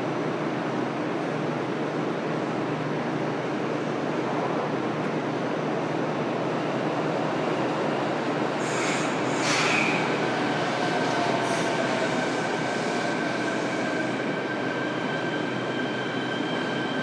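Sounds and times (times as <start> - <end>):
short high squeal: 8.6 - 10.1.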